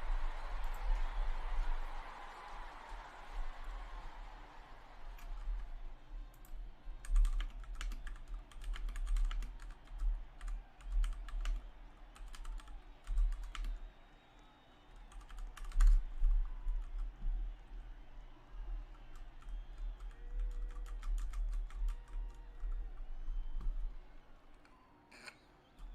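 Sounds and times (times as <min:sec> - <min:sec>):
typing on computer keyboard: 0:06.3 - 0:13.8, 0:15.0 - 0:17.1, 0:18.9 - 0:23.9.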